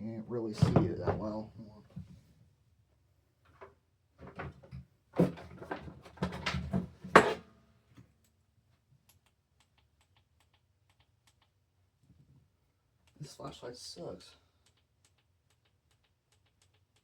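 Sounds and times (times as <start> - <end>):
objects clattering on desk: 4.2 - 7.4.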